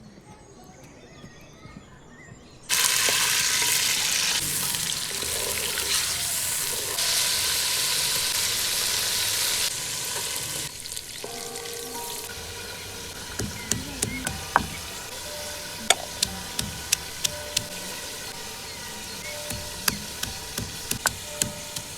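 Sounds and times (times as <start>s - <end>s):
food sizzling in hot oil: 2.7s - 21.9s
sharp taps: 13.2s - 15.0s, 15.8s - 18.0s, 19.3s - 21.9s.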